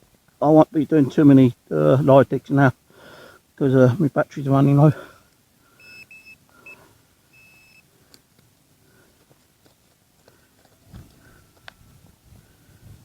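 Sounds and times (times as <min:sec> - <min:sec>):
metal detector beeps: 0:05.8 - 0:07.8
faint clicks: 0:08.1 - 0:08.6.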